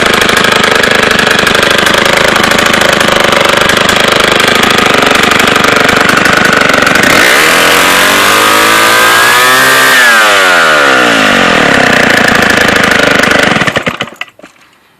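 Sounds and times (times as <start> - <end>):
chainsaw idling and revving: 0.0 - 14.4.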